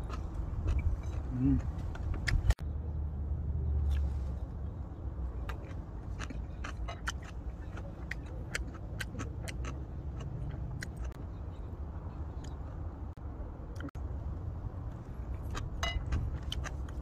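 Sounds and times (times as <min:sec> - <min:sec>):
steady low rumble: 0:00.0 - 0:17.0
close-up chewing: 0:05.4 - 0:11.2, 0:15.3 - 0:17.0.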